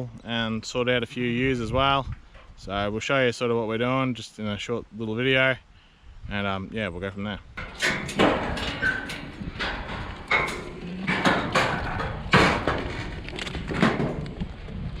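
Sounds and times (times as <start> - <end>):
clatter of sheep hooves: 7.6 - 15.0.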